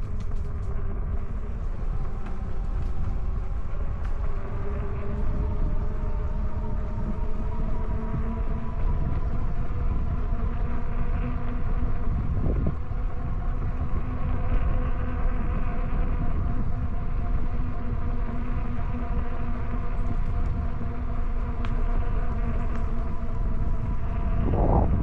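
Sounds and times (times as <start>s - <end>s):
electric bike motor whine: 0.0s - 25.0s
wind rumble on microphone: 0.0s - 25.0s.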